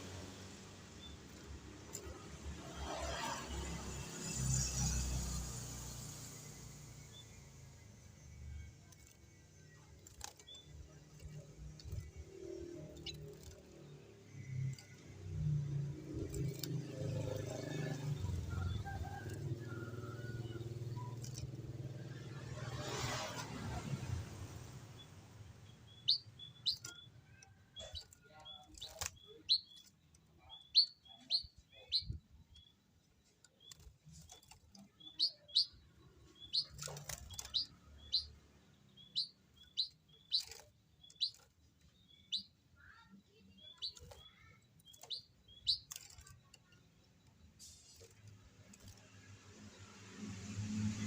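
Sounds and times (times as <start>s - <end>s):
bird chirping: 7.0s - 51.0s.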